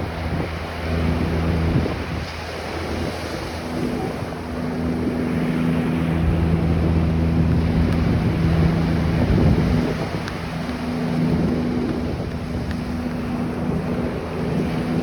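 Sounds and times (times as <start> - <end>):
low engine hum: 0.0 - 15.0
ocean surf on a beach: 0.0 - 15.0
wind buffeting microphone: 0.0 - 15.0.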